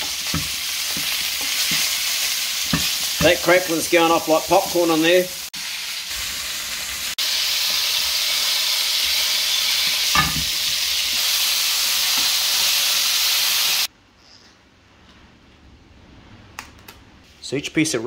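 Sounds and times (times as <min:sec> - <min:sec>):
meat sizzling in fat: 0:00.0 - 0:13.9
metal tongs knocking a pan: 0:10.1 - 0:10.6.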